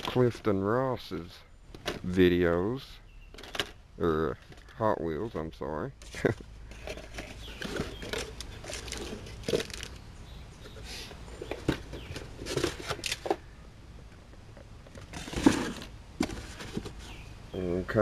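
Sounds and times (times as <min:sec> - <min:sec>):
packaging rustling and tearing: 0:06.8 - 0:10.0.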